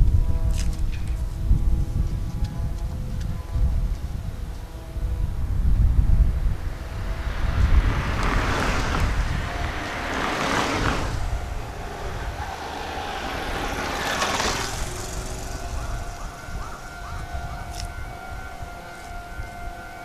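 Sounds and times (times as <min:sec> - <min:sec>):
electric train rumbling: 0:00.0 - 0:20.0
high brake squeal: 0:10.4 - 0:17.2.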